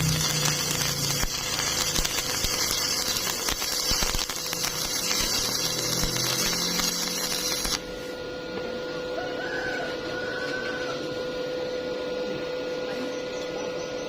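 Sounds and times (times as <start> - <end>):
welding arc crackling: 0.0 - 8.0.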